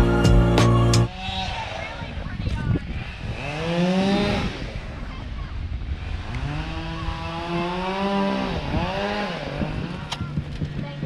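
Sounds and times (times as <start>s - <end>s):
chainsaw revving: 3.1s - 5.0s, 6.0s - 10.2s.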